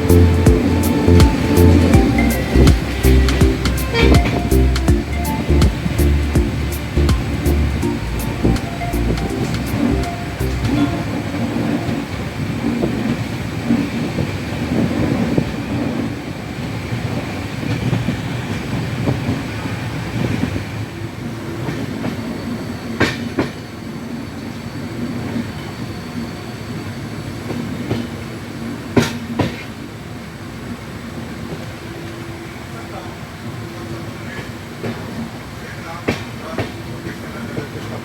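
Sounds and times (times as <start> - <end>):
train rumbling on track: 0.0 - 38.0
wheels clacking over rail joint: 28.9 - 29.8, 34.3 - 38.0.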